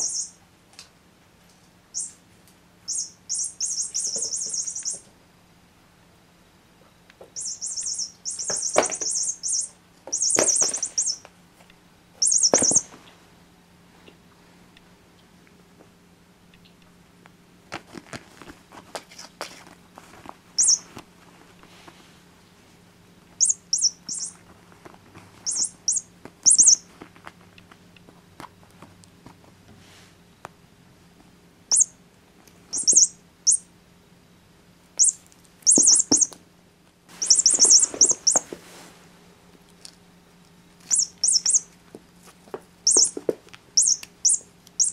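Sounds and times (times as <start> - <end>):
squeaky toy chirping: 0.0 - 0.4, 2.9 - 5.0, 7.4 - 11.2, 12.2 - 12.9, 20.6 - 20.8, 23.4 - 24.4, 25.4 - 26.8, 31.7 - 31.9, 32.7 - 33.6, 35.0 - 36.4, 37.2 - 38.4, 40.9 - 41.7, 42.8 - 43.2, 43.8 - 44.9.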